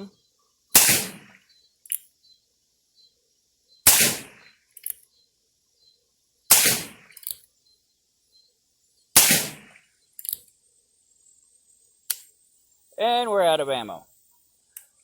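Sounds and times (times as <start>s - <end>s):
handgun shots: 0.8s - 1.4s, 3.9s - 4.4s, 6.5s - 7.4s, 9.2s - 9.8s
faint click: 12.0s - 12.3s.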